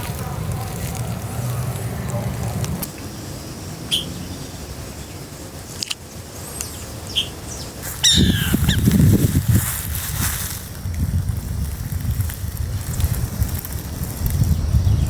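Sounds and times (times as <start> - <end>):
harsh falling bird call: 3.9 - 4.6, 6.7 - 9.2
high bird chirps: 3.9 - 5.2, 6.4 - 9.1.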